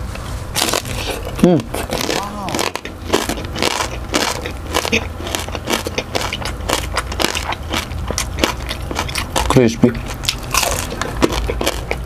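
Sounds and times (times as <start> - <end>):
chewing crispy food: 0.5 - 12.0.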